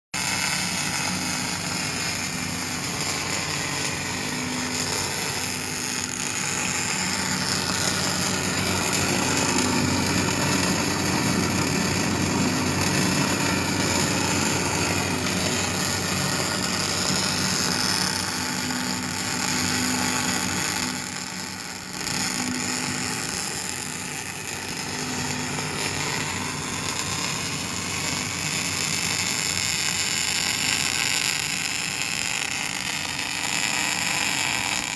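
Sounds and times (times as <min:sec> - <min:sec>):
welding arc sizzle: 0:00.2 - 0:34.9.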